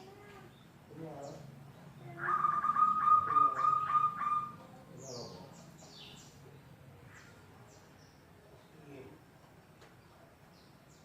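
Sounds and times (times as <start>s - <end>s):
small birds chirping: 0.0s - 11.0s
dove cooing: 2.1s - 4.6s.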